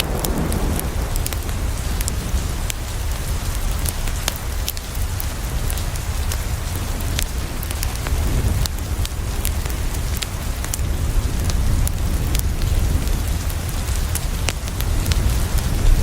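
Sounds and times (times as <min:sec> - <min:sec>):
low rumble: 0:00.0 - 0:04.2
rain on a window: 0:00.0 - 0:16.0
wood fire crackling: 0:00.0 - 0:16.0.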